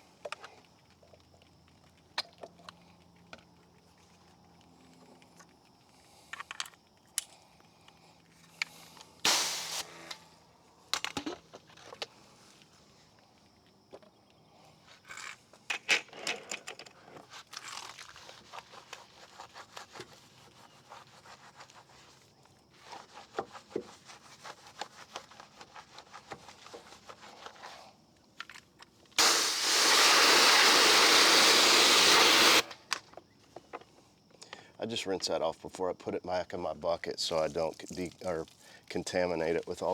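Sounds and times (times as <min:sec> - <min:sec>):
pressure washer spray: 0:09.3 - 0:10.1, 0:29.2 - 0:32.7
brush scrubbing a tire: 0:18.1 - 0:27.8, 0:29.2 - 0:32.7.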